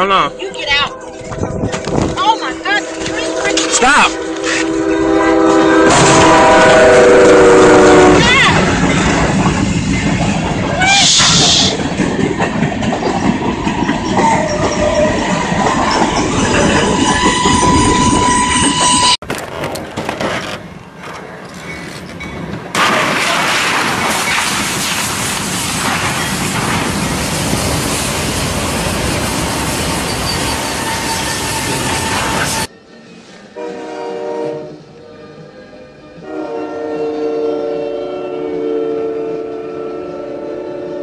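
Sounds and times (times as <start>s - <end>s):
train running on track: 0.0s - 41.0s
high squeal: 14.0s - 19.2s, 29.0s - 32.7s.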